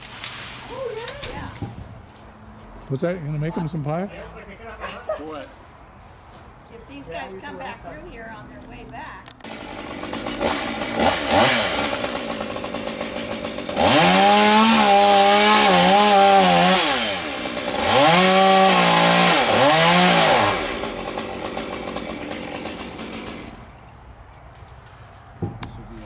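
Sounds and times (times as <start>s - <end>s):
chainsaw engine revving: 9.4s - 23.8s.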